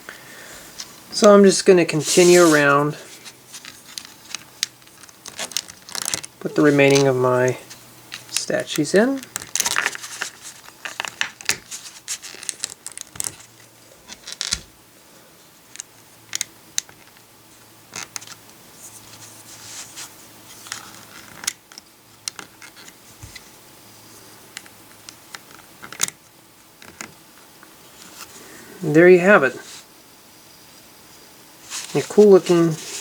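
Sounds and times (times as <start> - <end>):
plastic pieces clicking: 3.6 - 7.0.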